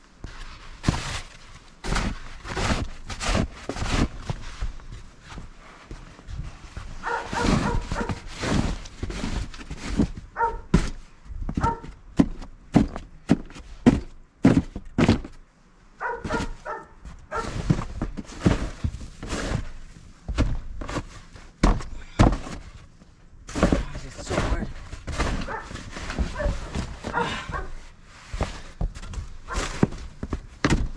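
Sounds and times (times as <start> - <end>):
snow shovel scraping snow: 0.5 - 4.4, 7.0 - 10.1, 17.3 - 19.8, 23.5 - 28.8
dog barking: 7.0 - 8.2, 10.4 - 10.7, 11.6 - 11.9, 16.0 - 17.5, 25.4 - 27.8, 29.5 - 29.7.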